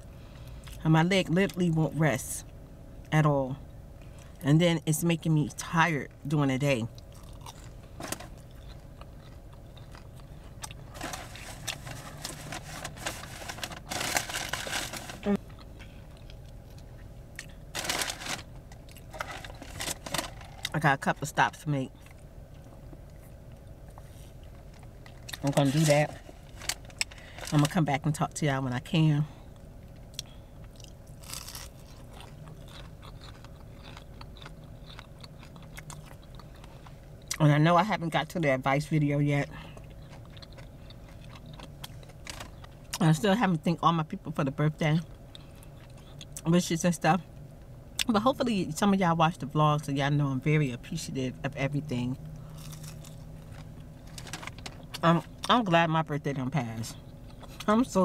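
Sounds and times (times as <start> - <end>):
low steady hum: 0.0 - 58.0
crunchy chewing: 6.9 - 20.7, 29.9 - 37.4, 39.7 - 43.0, 52.4 - 55.0.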